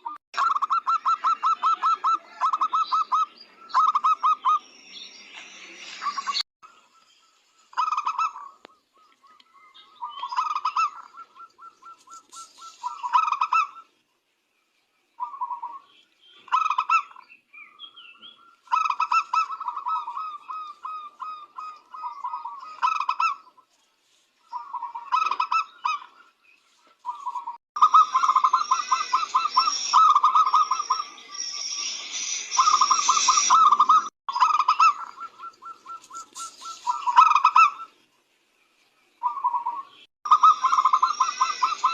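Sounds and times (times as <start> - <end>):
doves cooing: 0.0 - 4.6, 7.6 - 13.9, 15.2 - 15.9, 18.3 - 23.6, 24.4 - 26.3, 27.0 - 31.1, 32.6 - 38.0, 39.2 - 41.9.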